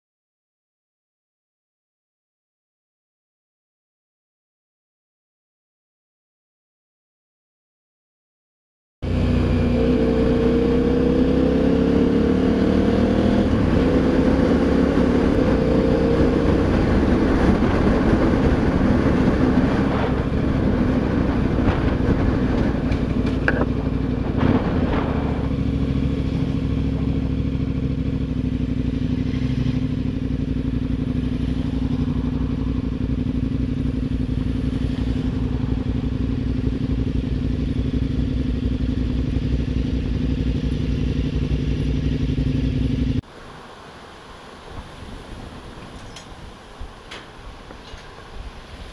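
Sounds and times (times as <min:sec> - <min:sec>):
motorcycle engine accelerating: 0:09.0 - 0:43.3.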